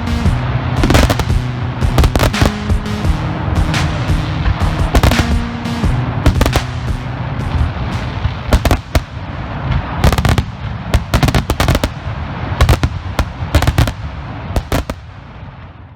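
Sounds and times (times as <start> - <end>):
fireworks cracks and bangs: 0.8 - 2.9, 4.8 - 5.5, 6.3 - 15.9.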